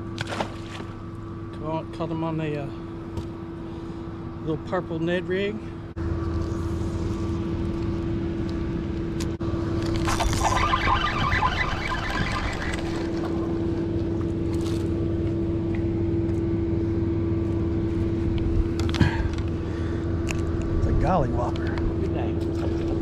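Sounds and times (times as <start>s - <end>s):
boat motor running: 0.0s - 23.0s.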